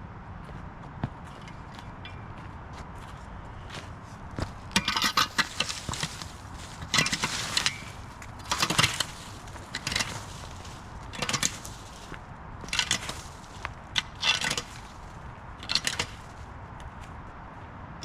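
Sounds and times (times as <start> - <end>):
twigs crackling and snapping: 4.7 - 17.1.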